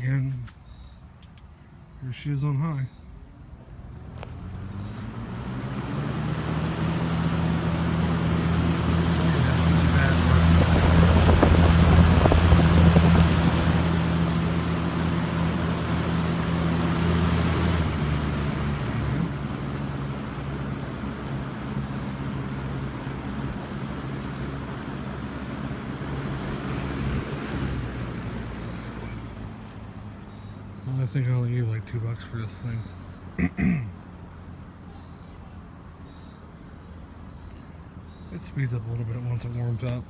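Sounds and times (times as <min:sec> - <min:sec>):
box fan running: 0:03.9 - 0:31.0.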